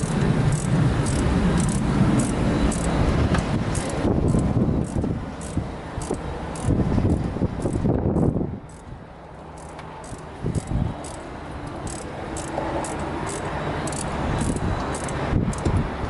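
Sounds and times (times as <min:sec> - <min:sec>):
insects chirping: 0:00.0 - 0:03.0, 0:09.5 - 0:15.2
steady low hum: 0:00.0 - 0:16.0.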